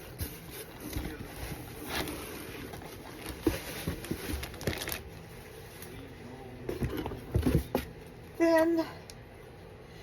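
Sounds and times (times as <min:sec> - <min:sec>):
paper and packaging rustling: 0:00.0 - 0:06.0.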